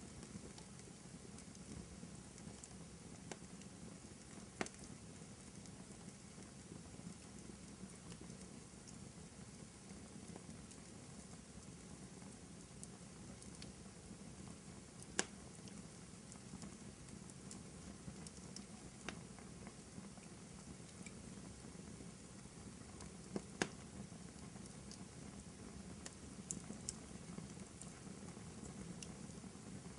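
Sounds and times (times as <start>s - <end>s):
wood fire crackling: 0.0s - 29.9s
sharp fire pops: 2.4s - 4.9s, 15.0s - 15.4s, 23.0s - 23.9s.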